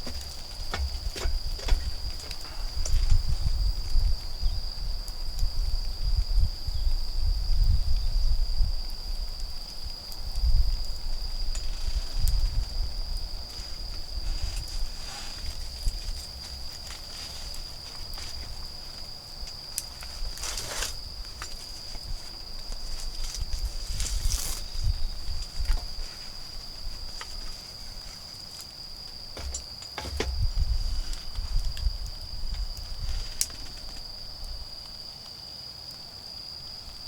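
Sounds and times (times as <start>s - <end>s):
campfire crackling: 0.0s - 6.7s, 8.8s - 37.0s
insects trilling: 0.0s - 37.0s
short rustle: 13.5s - 19.1s, 19.9s - 28.6s.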